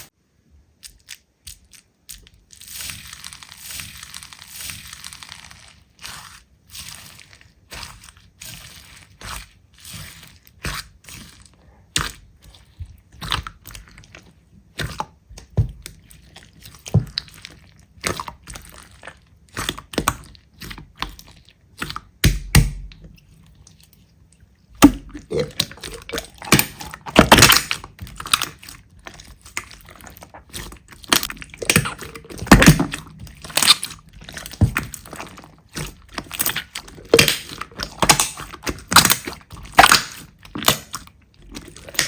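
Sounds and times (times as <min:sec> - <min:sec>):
slime squeezed crackling and popping: 0:00.8 - 0:23.3, 0:24.8 - 0:42.0.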